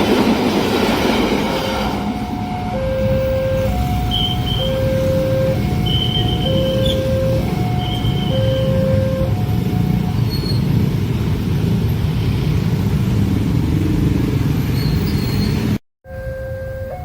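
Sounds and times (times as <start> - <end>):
train wheels rumbling on rails: 0.0 - 15.8
two-tone crossing alarm: 1.5 - 10.8, 16.1 - 17.0.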